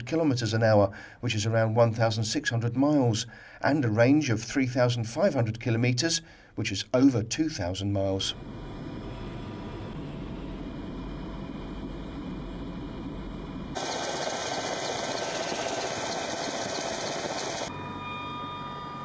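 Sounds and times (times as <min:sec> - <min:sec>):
helicopter engines and rotor: 0:08.4 - 0:18.0.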